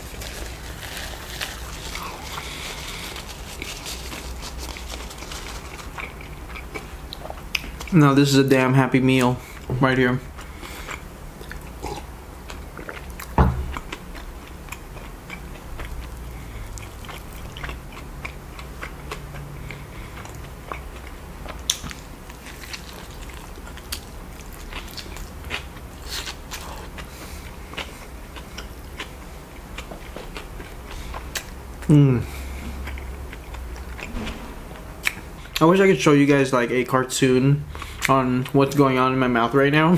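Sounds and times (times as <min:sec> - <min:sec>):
wet chewing and mouth clicks: 0:00.1 - 0:08.0, 0:10.4 - 0:34.1
loud knock: 0:34.0 - 0:35.6.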